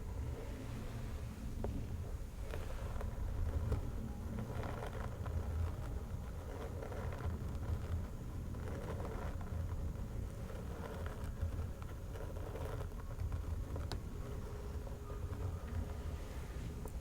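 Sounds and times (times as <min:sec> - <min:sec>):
fingernails scratching: 0:01.7 - 0:17.0.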